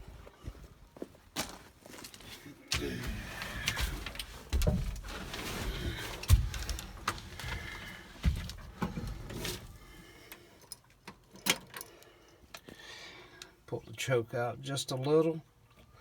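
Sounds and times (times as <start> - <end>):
truck cab and door clunks: 8.2 - 9.8.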